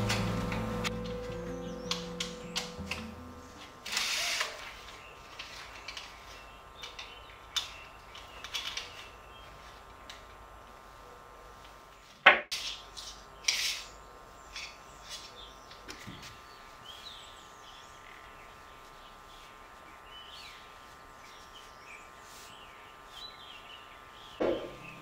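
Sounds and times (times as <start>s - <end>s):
faint steady whine: 0.0s - 7.1s.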